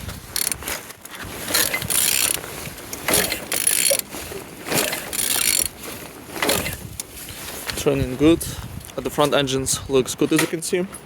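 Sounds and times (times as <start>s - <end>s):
engine turned over by hand: 0.0s - 8.1s.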